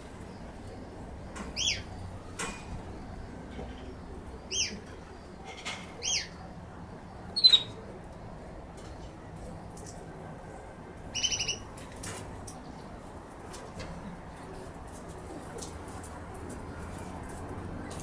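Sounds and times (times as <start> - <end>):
bird chirping: 7.4 - 7.8, 11.1 - 11.7.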